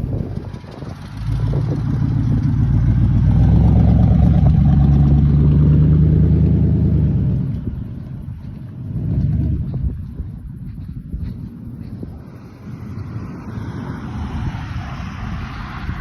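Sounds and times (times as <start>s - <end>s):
truck engine revving: 0.0s - 7.9s, 8.8s - 9.9s.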